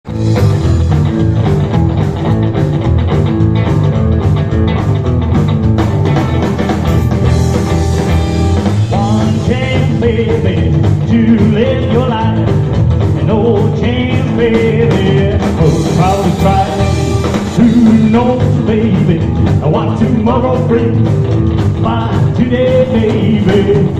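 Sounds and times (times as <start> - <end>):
bending lead guitar melody: 0.0 - 23.9
drums beating: 0.0 - 23.9
rock and roll band playing: 0.0 - 23.9.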